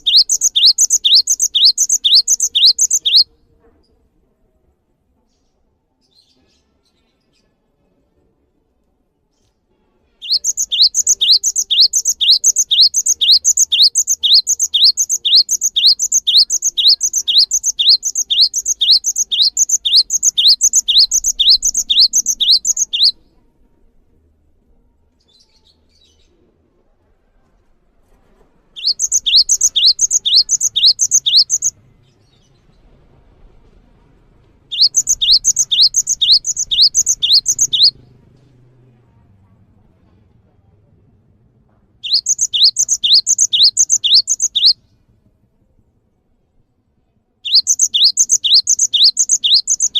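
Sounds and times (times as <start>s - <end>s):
songbird repeating high rising note: 0.0s - 3.2s, 10.2s - 23.2s, 28.8s - 31.7s, 34.7s - 38.0s, 42.1s - 44.8s, 47.5s - 49.9s.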